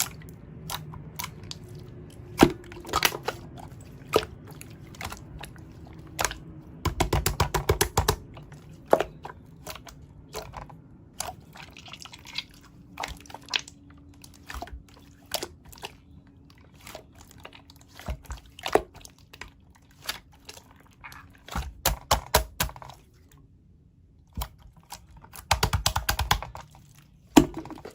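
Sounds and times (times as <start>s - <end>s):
slime squished by hand: 0.0s - 16.1s.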